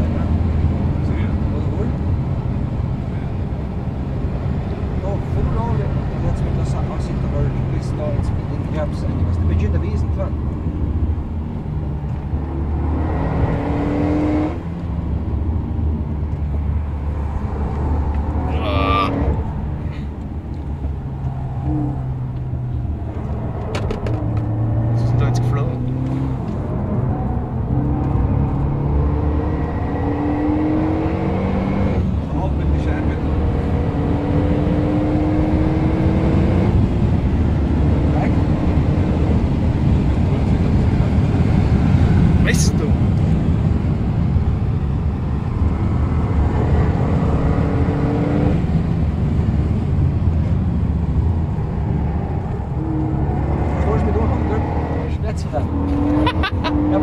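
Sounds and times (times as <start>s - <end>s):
car engine drone: 0.0s - 57.0s
road and tyre noise: 0.0s - 57.0s.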